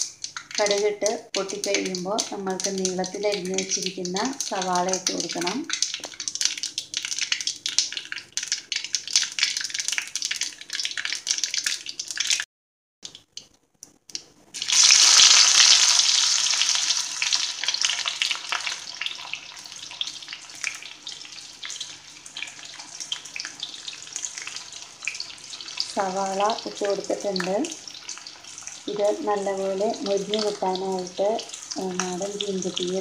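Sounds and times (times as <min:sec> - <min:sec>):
mustard seeds popping in oil: 0:00.0 - 0:12.4, 0:28.8 - 0:33.0
onions sizzling in oil: 0:00.0 - 0:12.4, 0:14.6 - 0:33.0.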